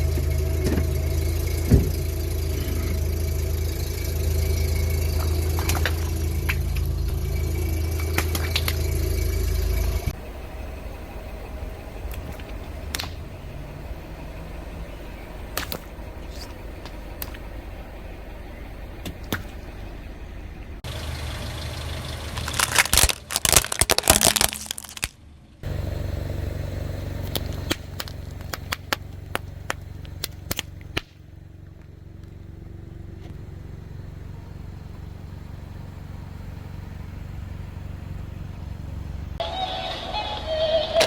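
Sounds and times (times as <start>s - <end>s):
car engine idling: 0.0s - 41.0s
sharp cracks: 3.6s - 10.1s, 12.1s - 13.3s, 15.5s - 17.6s, 20.9s - 25.3s, 27.2s - 32.4s
tyre crushing crunchy objects: 22.2s - 25.2s.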